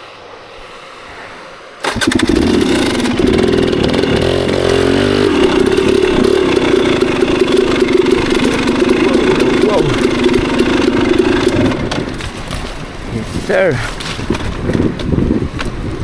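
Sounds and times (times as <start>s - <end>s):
dirt bike engine: 1.4s - 13.0s.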